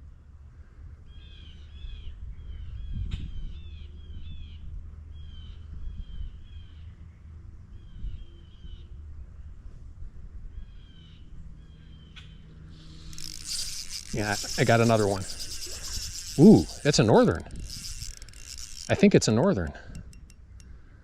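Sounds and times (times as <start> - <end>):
songbird singing: 10.6 - 20.7.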